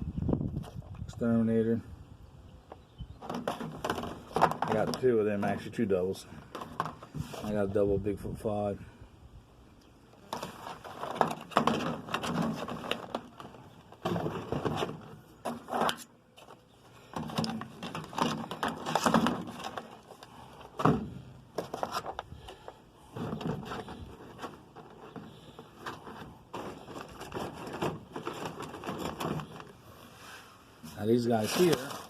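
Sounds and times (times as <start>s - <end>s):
rustling: 10.2s - 32.0s.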